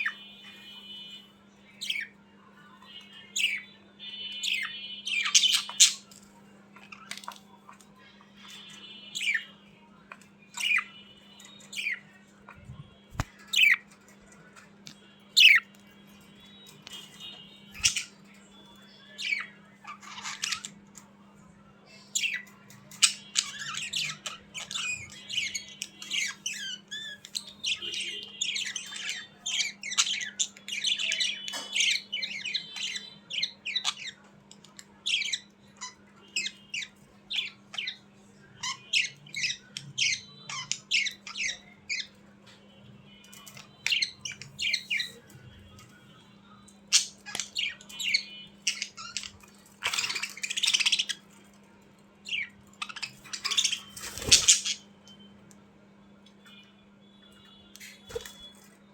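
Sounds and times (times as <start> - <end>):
budgerigars chattering: 4.4 - 6.1, 15.4 - 15.6, 46.9 - 51.3, 52.3 - 54.9.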